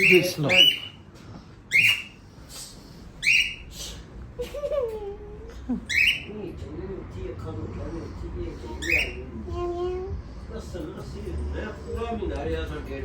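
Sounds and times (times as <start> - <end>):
parrot squawking: 0.0 - 1.0, 1.7 - 2.3, 3.2 - 4.0, 5.8 - 6.4, 8.6 - 9.5.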